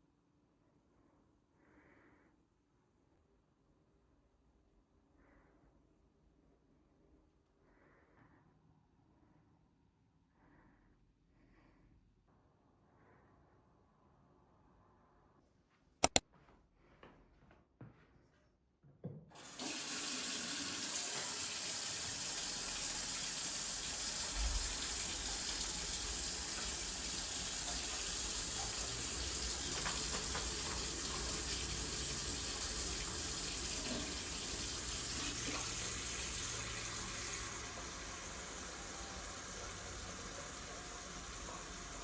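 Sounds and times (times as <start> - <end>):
tap running into a sink: 19.4 - 38.7.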